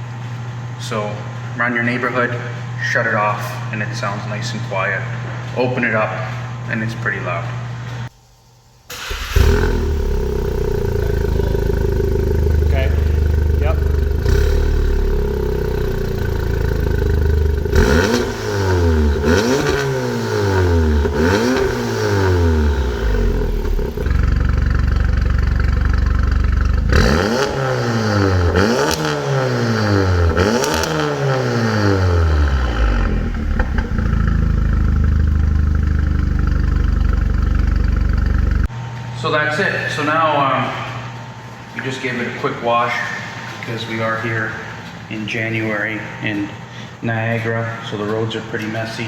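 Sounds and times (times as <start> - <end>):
car engine idling and revving: 8.9 - 38.7.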